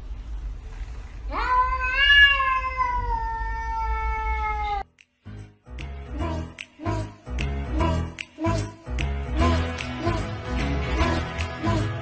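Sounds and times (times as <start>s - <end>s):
cat yowling: 1.3s - 4.9s.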